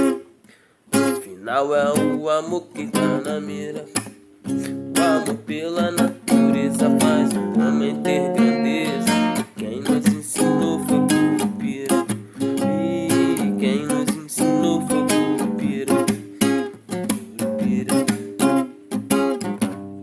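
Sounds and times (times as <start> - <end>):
acoustic guitar strumming: 0.0 - 20.0
voices singing along: 5.0 - 12.0.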